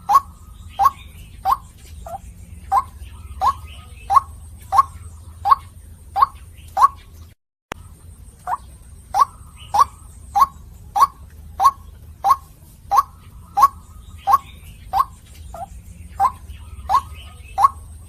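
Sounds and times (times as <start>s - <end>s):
waterhen calling: 0.0s - 18.0s.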